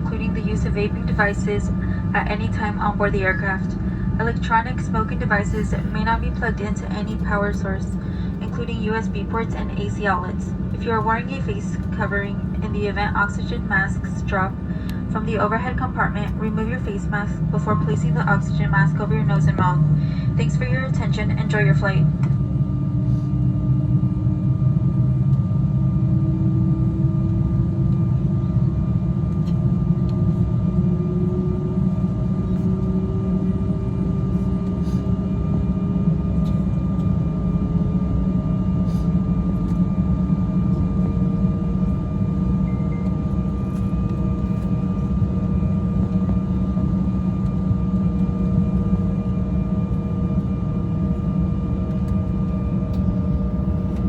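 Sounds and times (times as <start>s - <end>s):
jet engines rumbling: 0.0s - 54.0s
rising engine whine: 39.4s - 54.0s.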